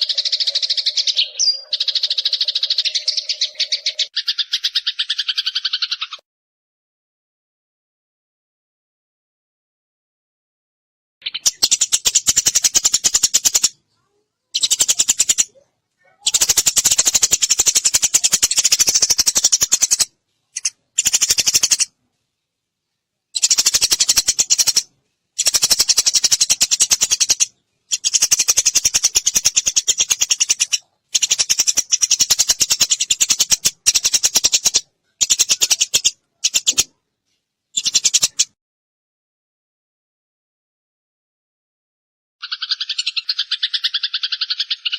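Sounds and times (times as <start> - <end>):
sparrows chirping: 0.0 - 6.2, 11.2 - 22.5, 23.3 - 37.0, 37.7 - 38.6, 42.4 - 44.9.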